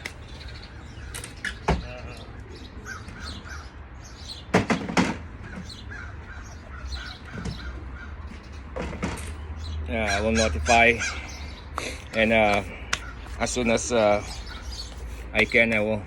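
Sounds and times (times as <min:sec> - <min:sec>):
harsh caw-like bird calls: 0:00.0 - 0:08.7, 0:09.9 - 0:15.5
small repeated bird chirps: 0:09.4 - 0:15.8.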